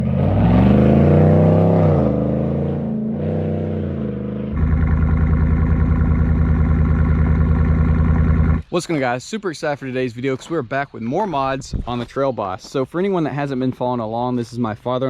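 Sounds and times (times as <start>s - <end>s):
pickup engine revving and idling: 0.0s - 8.6s.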